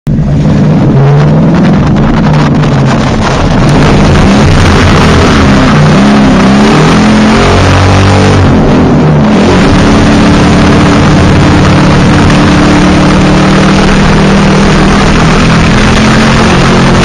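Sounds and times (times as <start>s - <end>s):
car engine revving hard: 0.1s - 17.0s
dense rushing noise: 0.1s - 17.0s.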